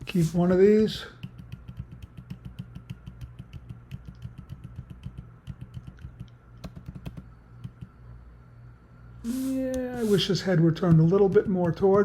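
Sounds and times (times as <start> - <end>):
steady low hum: 0.0 - 12.0
computer keyboard typing: 1.2 - 7.9.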